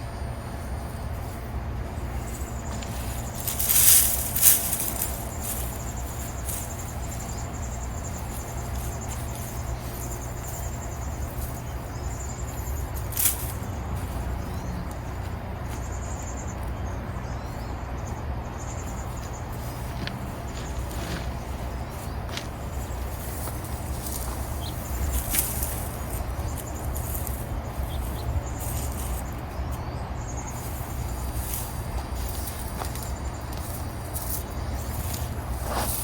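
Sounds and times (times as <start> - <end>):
faint insect chirping: 0.0 - 36.0
steady low rumble: 0.0 - 36.0
rustling scrapes: 2.2 - 10.8, 19.6 - 29.3, 30.6 - 36.0.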